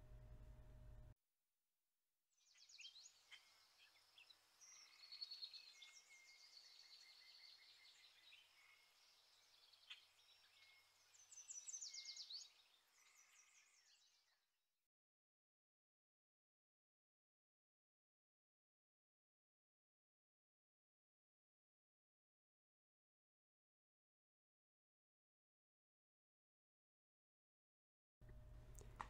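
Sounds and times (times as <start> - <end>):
faint birdsong: 2.4 - 14.5.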